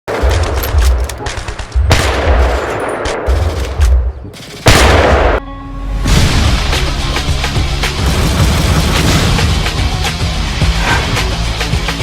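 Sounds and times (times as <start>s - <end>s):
gunfire bursts: 0.1s - 5.4s.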